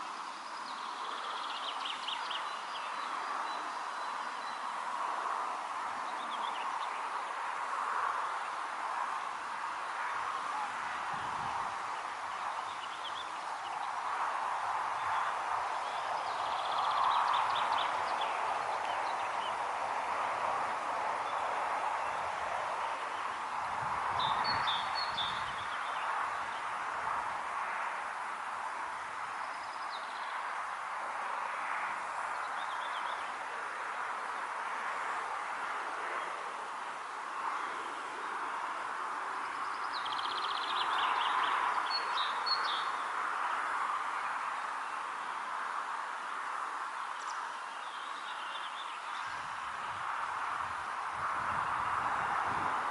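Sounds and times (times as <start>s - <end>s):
small birds chirping: 0.0s - 5.0s, 5.9s - 7.5s, 8.2s - 26.8s, 28.9s - 30.8s, 37.0s - 50.5s
outdoor ambient hiss: 0.0s - 52.9s.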